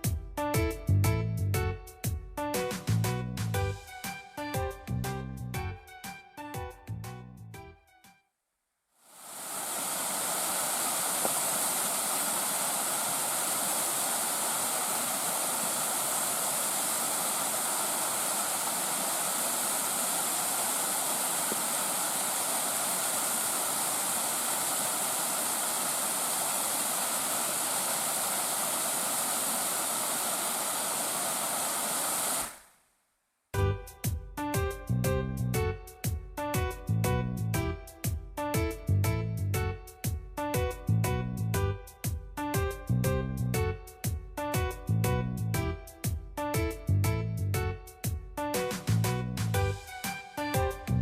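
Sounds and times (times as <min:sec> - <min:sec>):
stream rushing over rocks: 0:09.1 - 0:32.6.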